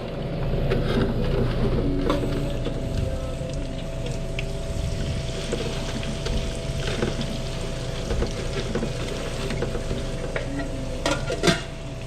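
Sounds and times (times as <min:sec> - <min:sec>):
food sizzling: 0:02.2 - 0:12.0
kitchen utensils clinking: 0:08.1 - 0:11.8.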